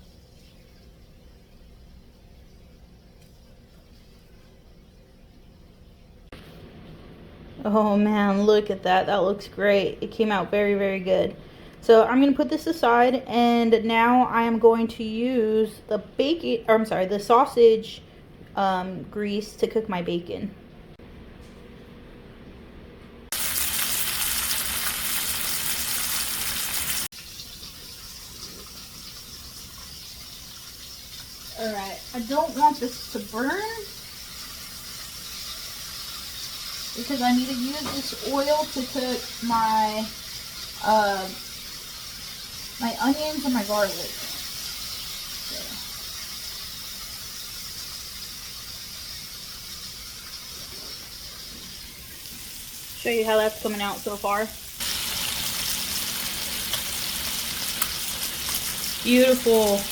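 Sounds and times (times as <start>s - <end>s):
bacon sizzling in grease: 23.3s - 59.9s.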